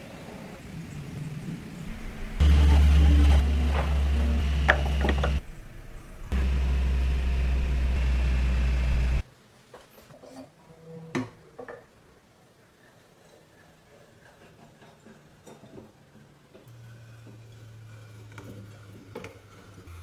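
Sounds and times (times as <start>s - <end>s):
small electric motor humming: 1.9s - 9.2s.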